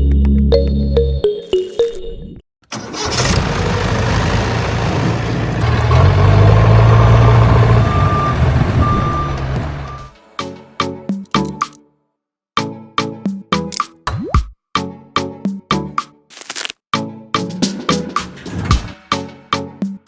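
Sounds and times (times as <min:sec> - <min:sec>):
music: 0:00.0 - 0:02.4, 0:09.9 - 0:16.3, 0:16.9 - 0:20.0
vehicle engine running: 0:02.7 - 0:10.1.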